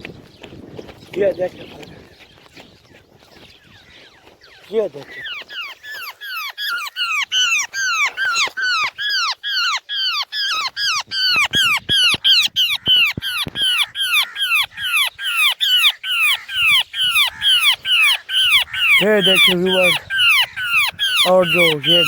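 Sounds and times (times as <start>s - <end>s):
bird rasping alarm calls: 4.6s - 22.0s.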